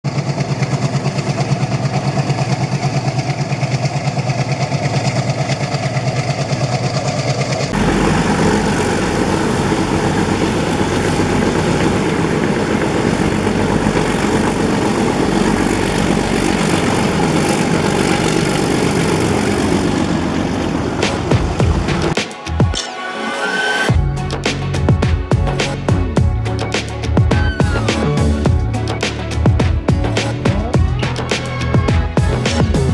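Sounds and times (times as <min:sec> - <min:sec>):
locomotive rumbling past: 0:00.1 - 0:22.7
locomotive engine chugging: 0:00.1 - 0:22.8, 0:23.9 - 0:32.9.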